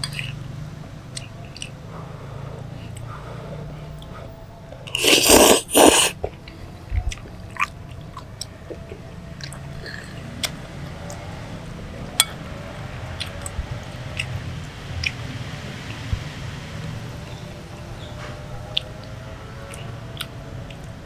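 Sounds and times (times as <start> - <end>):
person slurping noodles: 4.9 - 6.4
person chewing: 4.9 - 7.7.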